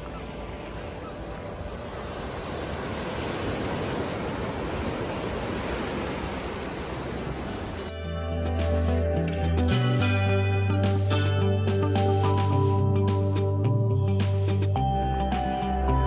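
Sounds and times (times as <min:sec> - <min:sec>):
ocean surf on rocks: 0:00.0 - 0:07.9
guitar music: 0:07.9 - 0:14.3.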